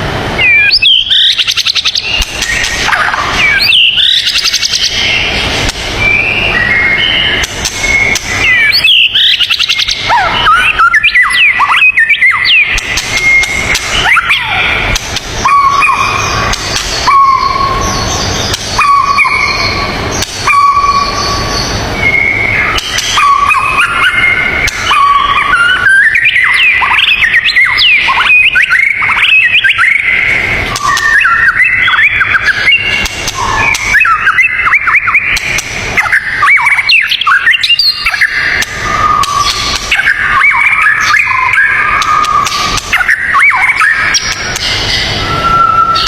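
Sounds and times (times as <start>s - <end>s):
steady rushing background: 0.0s - 10.8s, 12.0s - 46.0s
birds singing: 0.0s - 46.0s
low bird whistle: 15.4s - 46.0s.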